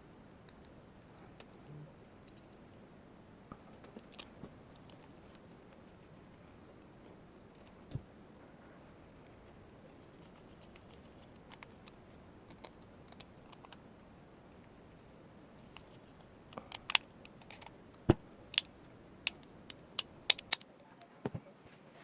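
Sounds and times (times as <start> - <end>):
rifle parts clicking and tapping: 18.5 - 20.7.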